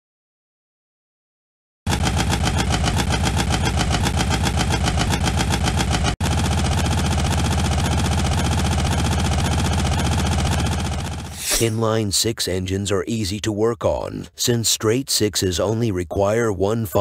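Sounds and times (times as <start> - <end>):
smoother car engine running: 1.9 - 11.5.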